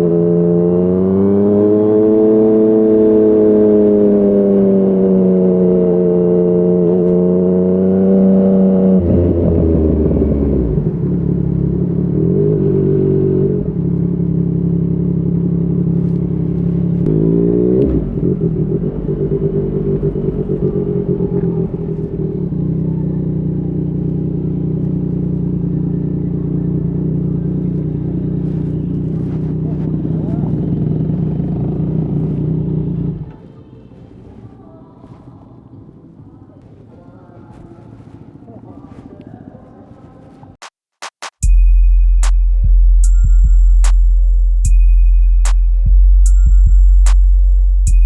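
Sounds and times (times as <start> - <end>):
motorcycle engine revving: 0.0 - 35.3.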